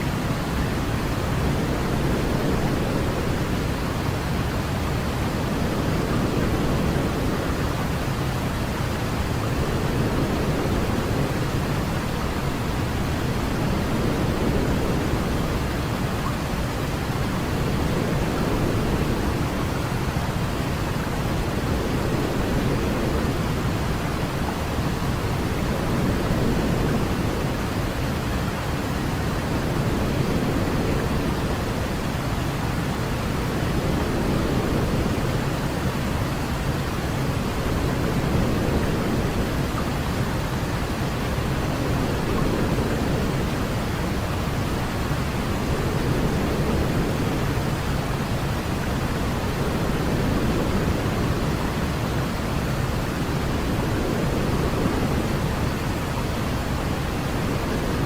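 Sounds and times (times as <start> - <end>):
deep white noise hiss: 0.0 - 58.0.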